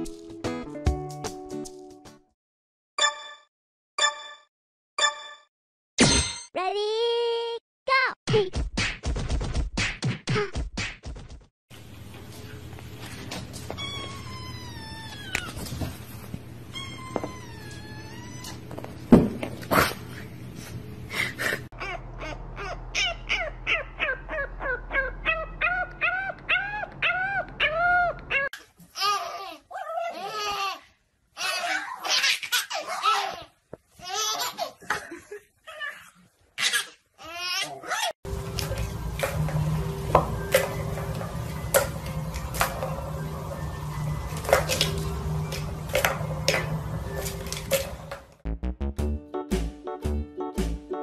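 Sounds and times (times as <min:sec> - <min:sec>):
puppy yelping: 0:21.8 - 0:28.6, 0:31.4 - 0:33.5, 0:35.7 - 0:38.2
plastic ball rolling rumble: 0:38.3 - 0:48.4.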